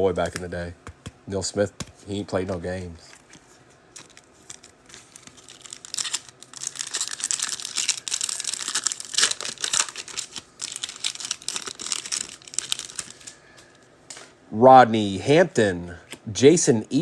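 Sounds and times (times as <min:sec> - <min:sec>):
wrapper crinkling and tearing: 0:03.9 - 0:13.4.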